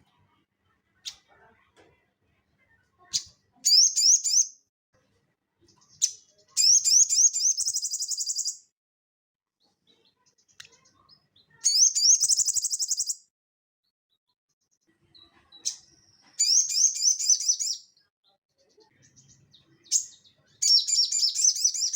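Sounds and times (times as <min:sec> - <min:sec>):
songbird singing: 0:03.1 - 0:04.6, 0:05.6 - 0:08.6, 0:09.9 - 0:13.2, 0:15.1 - 0:18.0, 0:18.7 - 0:21.9.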